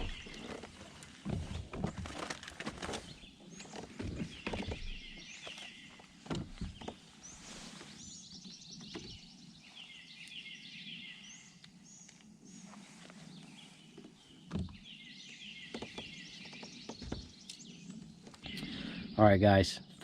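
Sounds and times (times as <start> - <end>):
songbirds singing: 0.0 - 20.0.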